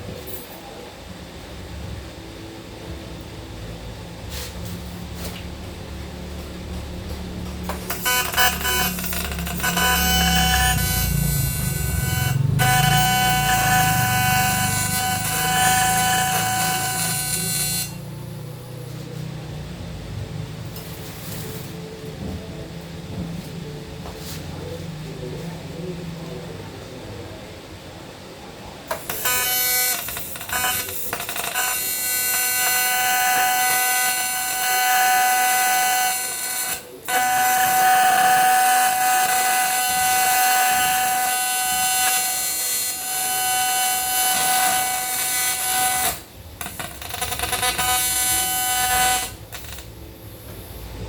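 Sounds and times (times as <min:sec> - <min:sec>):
power tool whining: 0:07.4 - 0:19.0, 0:28.9 - 0:50.7.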